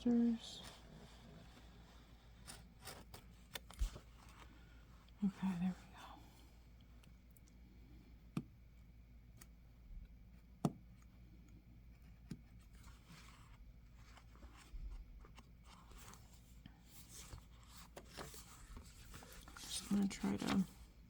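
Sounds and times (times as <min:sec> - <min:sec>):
plastic scraping and rustling: 0:12.5 - 0:20.8.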